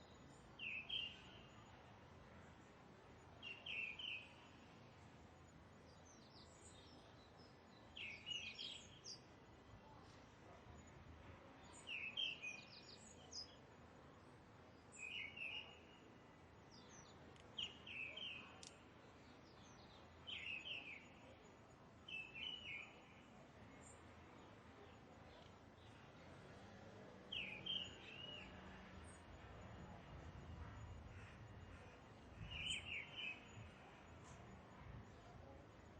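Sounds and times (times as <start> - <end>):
faint background hiss: 0.0 - 35.9
bird chirping: 14.9 - 16.0, 22.1 - 23.1, 27.3 - 29.2, 31.1 - 34.0.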